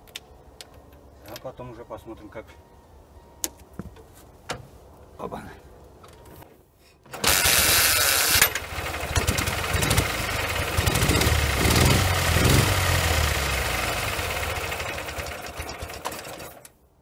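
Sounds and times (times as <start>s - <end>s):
motorcycle engine running roughly: 7.2s - 16.4s.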